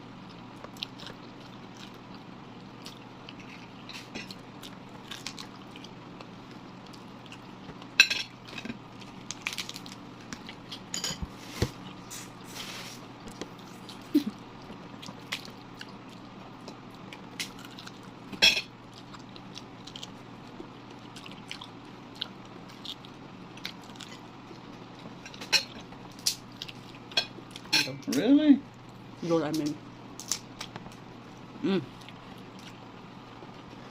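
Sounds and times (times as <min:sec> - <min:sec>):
person chewing and biting: 0:13.3 - 0:24.3.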